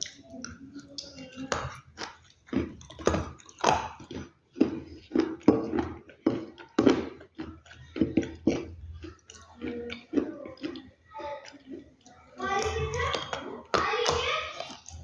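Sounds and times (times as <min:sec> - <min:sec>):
crunchy chewing and biting: 0:01.4 - 0:12.0.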